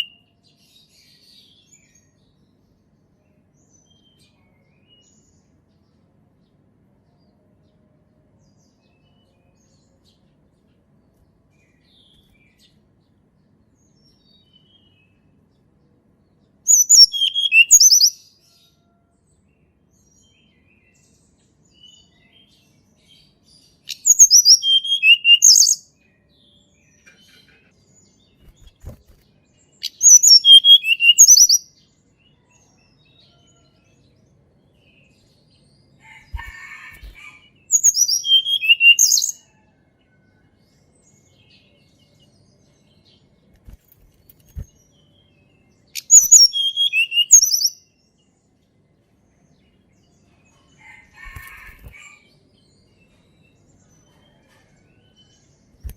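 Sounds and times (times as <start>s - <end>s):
robin singing whistled phrases: 0.0s - 0.2s, 16.7s - 18.3s, 23.9s - 25.9s, 29.8s - 31.7s, 37.7s - 39.4s, 46.0s - 47.8s.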